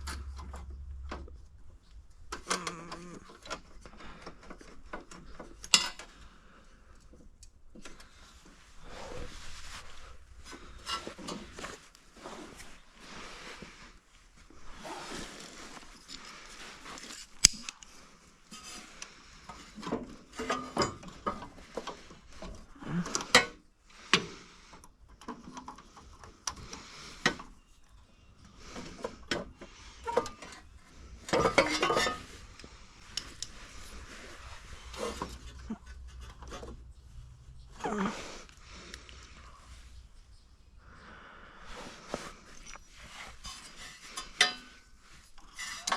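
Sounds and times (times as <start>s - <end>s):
metal parts clattering: 30.0s - 32.4s
metal tools clinking and knocking: 30.0s - 32.6s, 42.5s - 45.9s.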